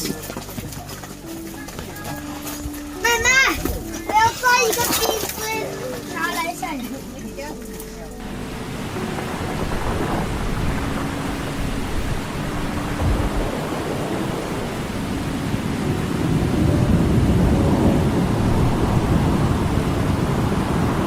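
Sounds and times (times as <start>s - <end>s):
rushing water roar: 8.2s - 21.0s.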